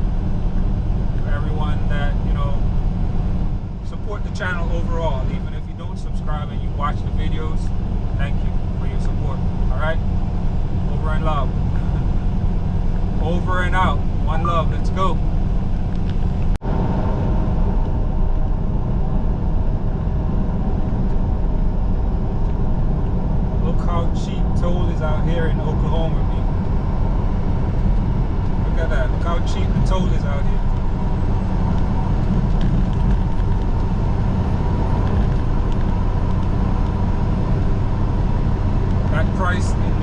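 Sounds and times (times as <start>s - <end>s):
truck engine and road rumble: 0.0s - 40.0s.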